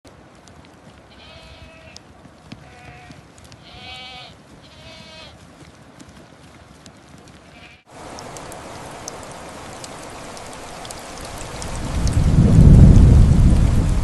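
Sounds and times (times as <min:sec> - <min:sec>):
livestock bleating: 0:01.1 - 0:02.0, 0:02.6 - 0:05.4, 0:07.4 - 0:07.9
steady hiss: 0:07.5 - 0:14.0.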